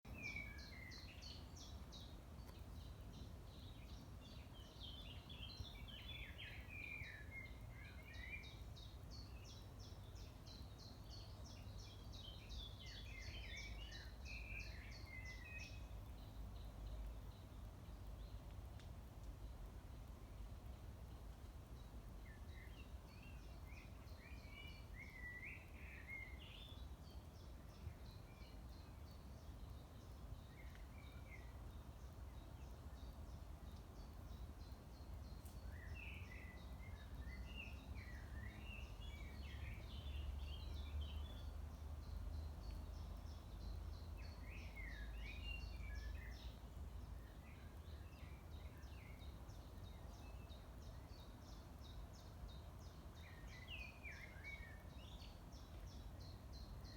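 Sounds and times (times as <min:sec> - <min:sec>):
songbird singing warbled phrases: 0:00.1 - 0:18.4, 0:22.2 - 0:56.9.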